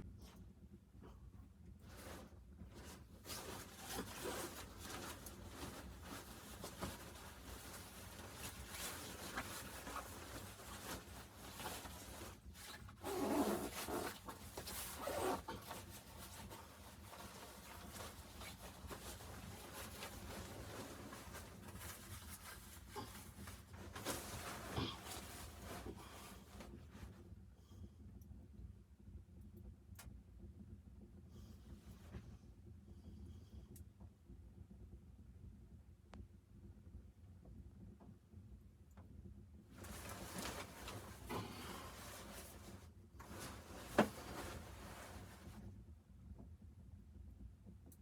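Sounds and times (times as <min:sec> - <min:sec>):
fabric rustling and rubbing: 0:01.8 - 0:27.2, 0:39.8 - 0:45.7.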